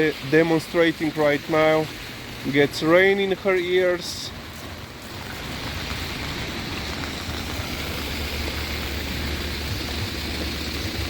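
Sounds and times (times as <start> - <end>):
rain hiss: 0.0 - 11.0
vehicle engine humming: 0.0 - 11.0.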